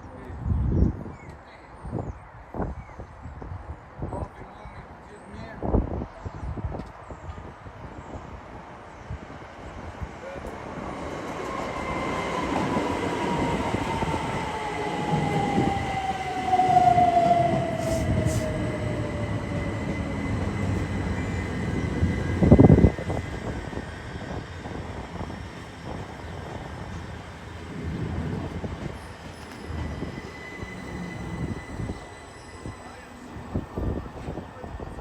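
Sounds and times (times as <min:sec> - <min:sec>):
wheels rumbling on rail: 0:09.4 - 0:35.0
electric train motor whine: 0:12.4 - 0:35.0.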